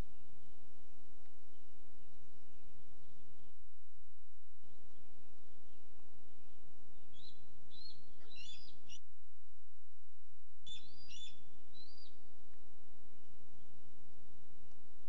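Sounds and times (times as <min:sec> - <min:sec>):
background hiss: 0:00.0 - 0:15.0
low electrical hum: 0:00.0 - 0:15.0
bird whistled notes: 0:07.1 - 0:09.0, 0:10.7 - 0:12.2.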